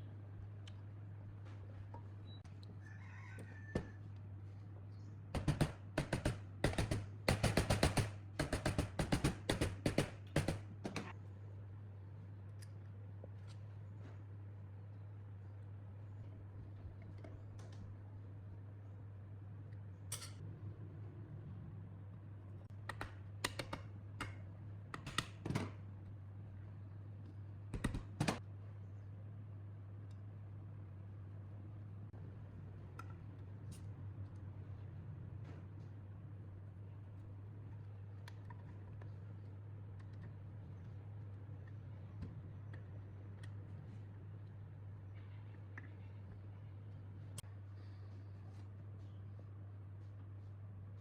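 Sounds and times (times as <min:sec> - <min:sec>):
steady low hum: 0:00.0 - 0:51.0
clicks and taps of small parts: 0:22.8 - 0:25.7.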